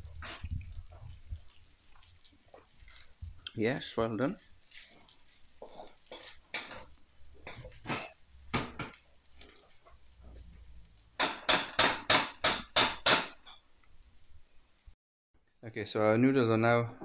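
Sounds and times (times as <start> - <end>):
utensil scraping wok: 2.6 - 12.7.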